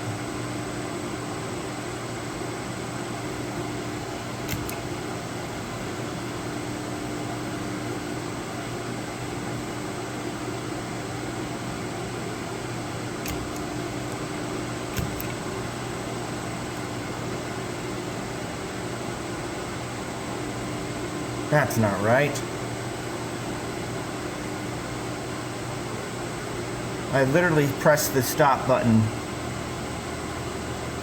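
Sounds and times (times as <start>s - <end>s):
milling machine humming: 2.0s - 7.9s, 11.5s - 21.5s
brief clicks: 4.5s - 4.9s, 13.2s - 14.3s, 14.9s - 15.4s.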